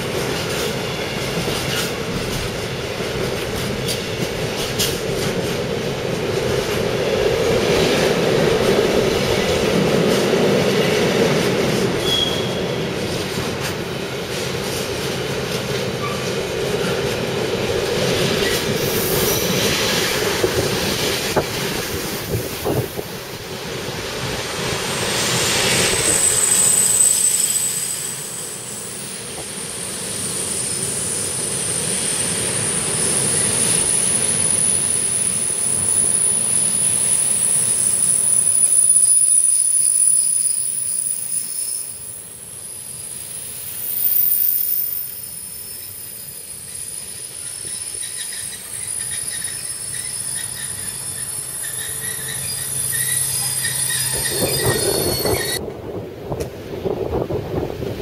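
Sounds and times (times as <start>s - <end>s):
train wheels rolling: 0.0s - 42.0s, 43.4s - 58.0s
high-pitched wheel squeal: 12.0s - 12.7s, 25.1s - 29.1s, 43.9s - 55.6s.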